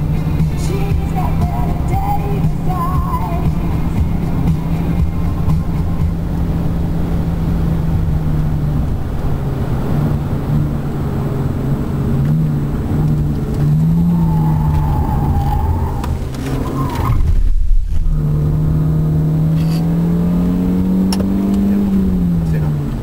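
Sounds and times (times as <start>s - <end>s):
car engine revving: 0.0s - 23.0s
tyre squeal: 13.7s - 17.3s
heavy low bump: 17.2s - 19.1s.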